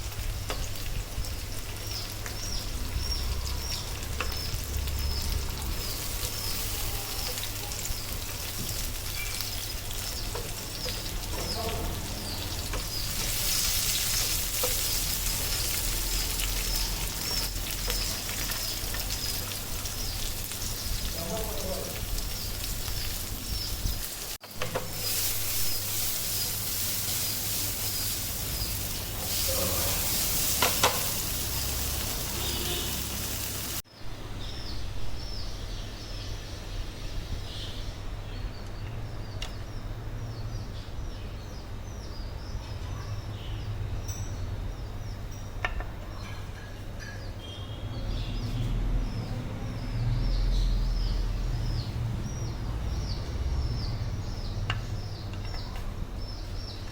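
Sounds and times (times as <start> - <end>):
food sizzling in a frying pan: 0.0 - 33.9
birds chirping: 0.0 - 56.9.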